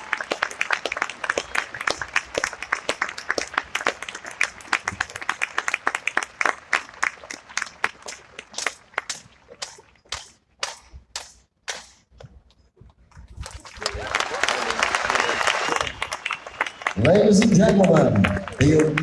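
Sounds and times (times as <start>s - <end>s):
audience applauding: 0.0s - 10.3s, 13.4s - 19.0s.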